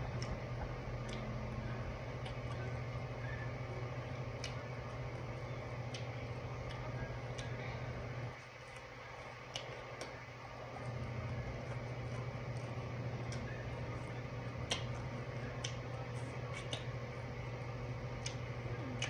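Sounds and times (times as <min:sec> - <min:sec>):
steady low hum: 0:00.0 - 0:19.0
wet clicks and smacks: 0:00.1 - 0:01.3, 0:02.1 - 0:02.8, 0:04.0 - 0:07.6, 0:08.6 - 0:10.2, 0:11.2 - 0:19.0.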